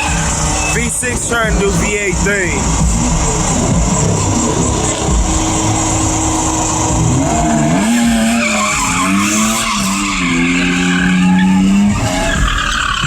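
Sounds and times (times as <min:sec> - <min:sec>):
car engine at high revs: 0:00.0 - 0:13.0
tires squealing: 0:00.0 - 0:13.0.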